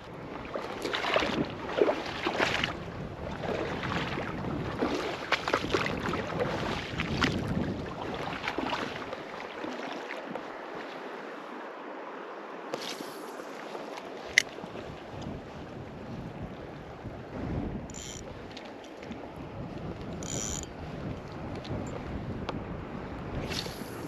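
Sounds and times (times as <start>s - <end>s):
wind buffeting microphone: 0.0s - 9.3s, 14.2s - 24.0s
river water running: 0.0s - 24.0s.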